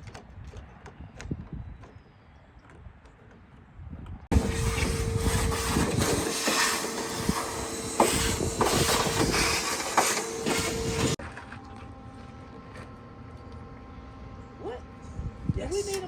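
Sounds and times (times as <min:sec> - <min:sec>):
metalwork hissing and crackling: 0:04.3 - 0:11.2
steady hum: 0:04.3 - 0:16.0.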